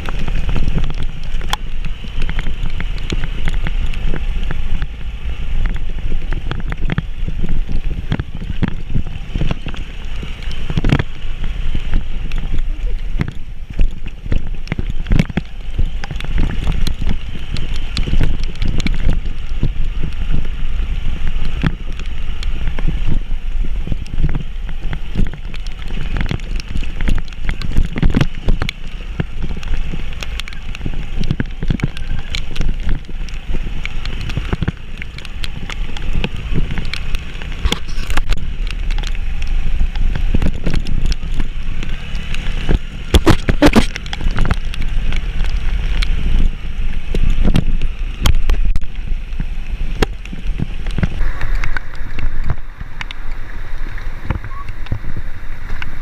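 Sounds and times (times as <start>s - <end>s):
vehicle rumble on rough road: 0.0s - 56.0s
wind buffeting microphone: 0.0s - 56.0s.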